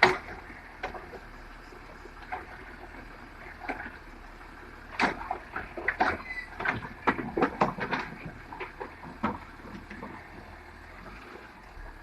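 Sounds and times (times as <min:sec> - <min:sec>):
faint low rumble: 0:00.0 - 0:12.0
sharp knocks and clatters: 0:05.0 - 0:10.2.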